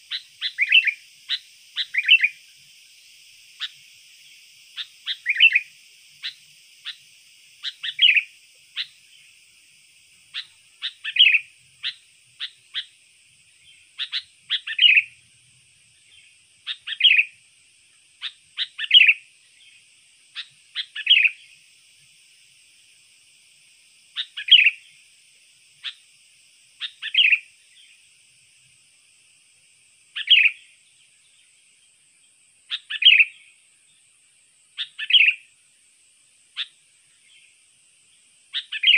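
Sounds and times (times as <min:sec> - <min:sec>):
bulbul calling: 0:00.0 - 0:02.5, 0:03.5 - 0:09.4, 0:10.3 - 0:13.0, 0:13.6 - 0:15.2, 0:16.1 - 0:17.4, 0:18.2 - 0:19.3, 0:20.3 - 0:21.5, 0:24.1 - 0:24.9, 0:26.8 - 0:27.5, 0:30.2 - 0:30.6, 0:32.7 - 0:33.4, 0:34.8 - 0:35.5, 0:38.5 - 0:38.9.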